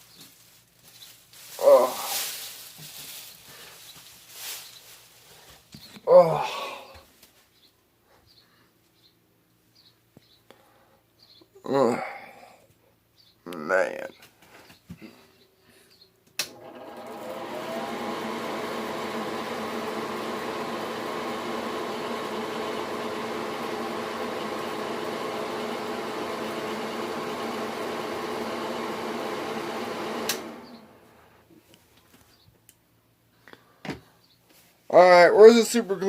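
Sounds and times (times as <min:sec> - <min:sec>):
exhaust fan motor humming: 0:16.4 - 0:31.4.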